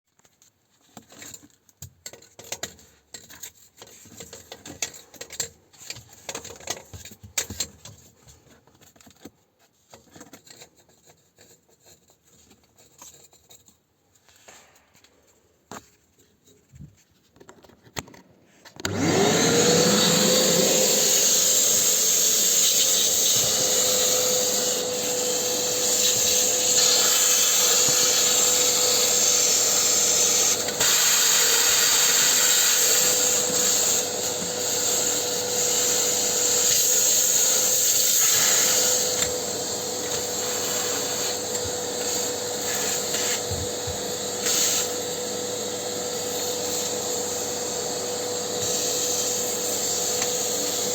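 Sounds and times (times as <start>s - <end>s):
vacuum cleaner running: 18.8s - 50.9s.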